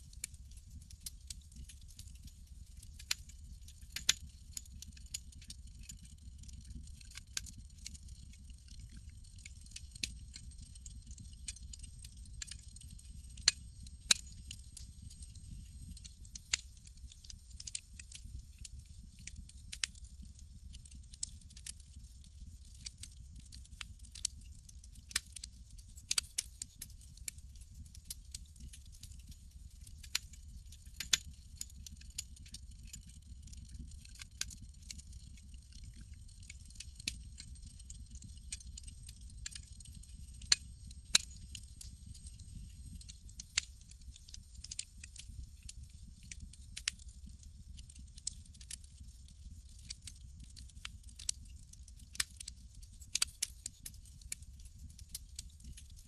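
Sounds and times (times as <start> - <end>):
campfire crackling: 4.0 - 20.0, 31.0 - 49.1.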